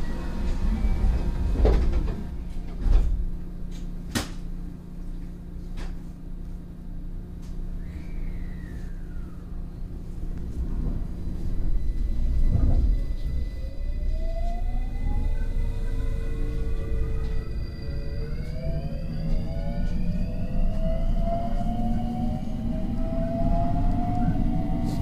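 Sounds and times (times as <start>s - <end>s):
train low hum: 0.0s - 25.0s
brief falling whine: 7.8s - 10.0s, 11.4s - 25.0s.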